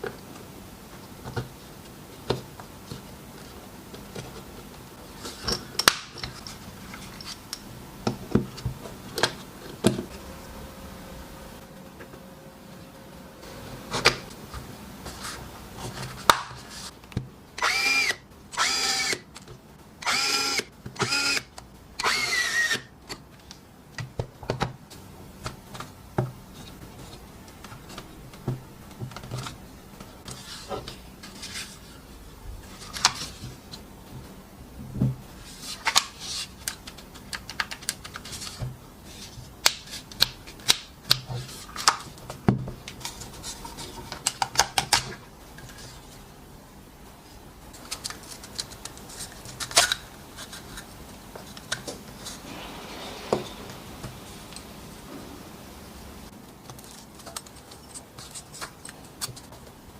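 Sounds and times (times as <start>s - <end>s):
cordless drill motor whining: 17.6s - 19.2s, 20.0s - 21.4s, 22.0s - 22.9s.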